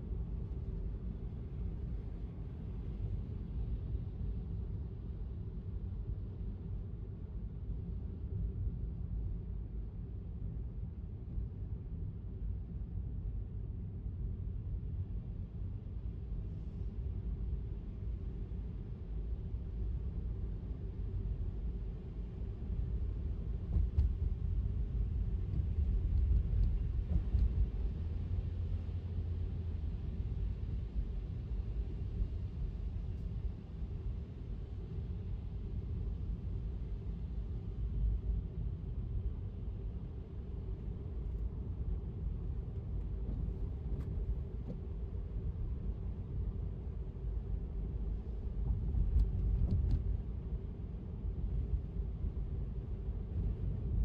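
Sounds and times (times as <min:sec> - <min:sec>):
road and tyre noise: 0:41.0 - 0:50.6.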